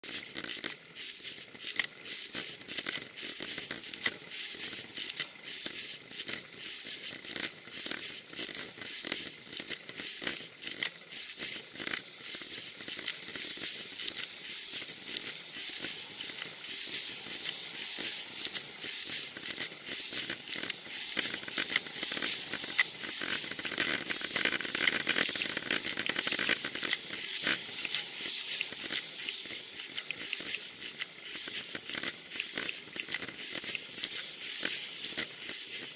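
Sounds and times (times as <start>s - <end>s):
rain and wet road hiss: 12.3s - 35.9s.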